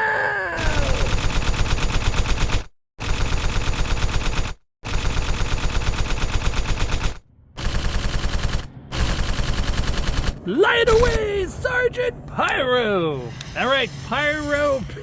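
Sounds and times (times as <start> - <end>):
machine-gun fire: 0.6 - 11.2.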